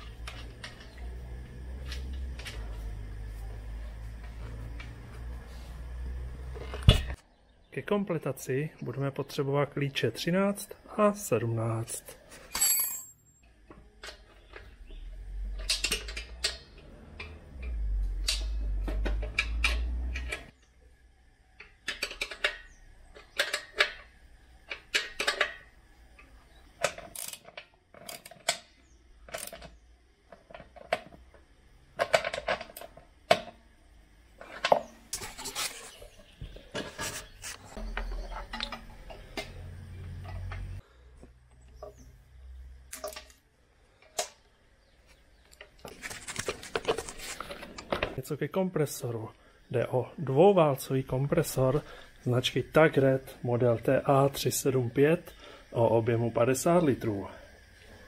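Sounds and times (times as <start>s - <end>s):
metal spanners clinking: 12.4s - 13.5s.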